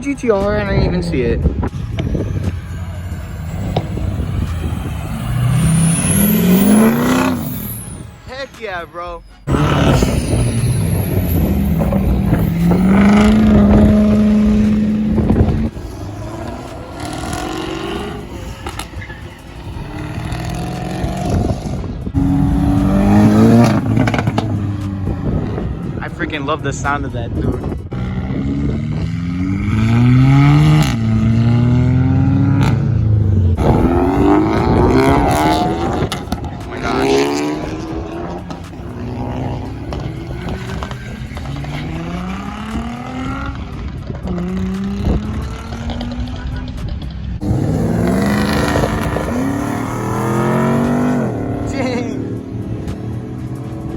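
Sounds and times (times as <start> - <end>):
wind rumble on microphone: 0.6 - 2.8, 9.5 - 17.3, 21.0 - 36.6
car engines accelerating past: 0.9 - 8.3, 9.4 - 53.9.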